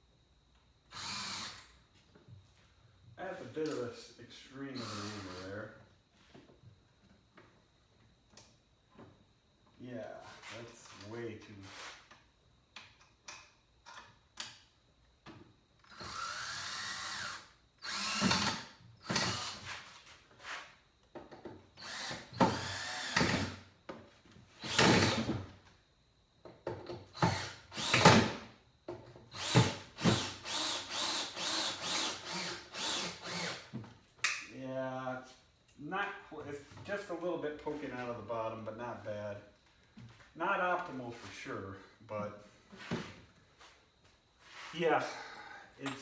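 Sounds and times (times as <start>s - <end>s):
cordless drill driving screws: 0.9s - 1.6s, 4.8s - 5.5s, 15.9s - 19.6s, 21.8s - 23.6s, 24.6s - 25.4s, 27.2s - 28.4s, 29.3s - 33.7s.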